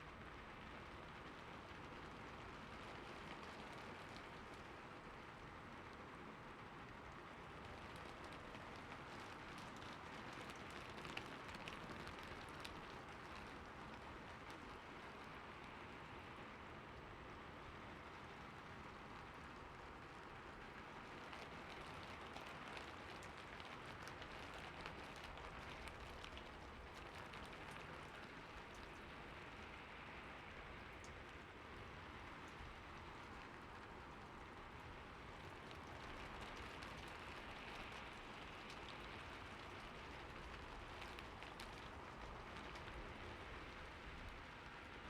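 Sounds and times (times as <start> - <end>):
soft rain falling: 0.0 - 45.0
raindrops ticking: 7.6 - 15.8, 20.0 - 45.0.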